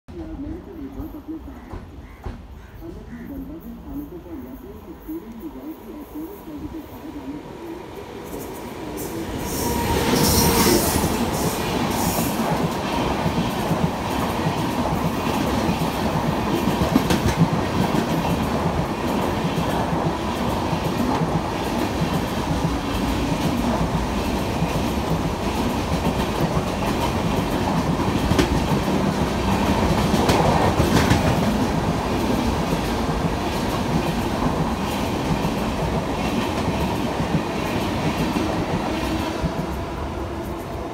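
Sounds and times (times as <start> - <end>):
train rumbling past: 0.2 - 40.9
rail clatter: 8.3 - 40.9.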